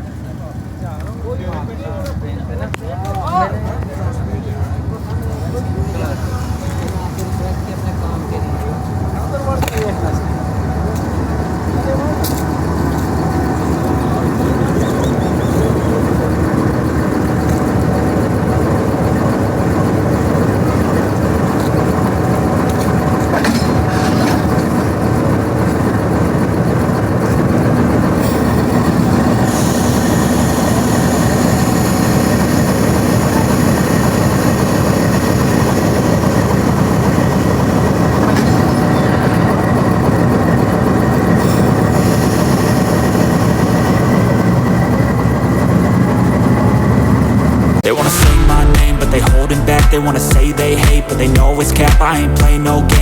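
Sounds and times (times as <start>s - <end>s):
locomotive rolling on rails: 0.0s - 52.9s.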